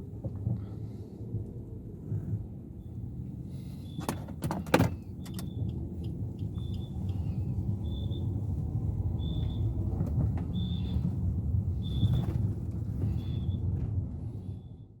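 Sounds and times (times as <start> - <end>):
car engine idling: 5.0 - 13.6.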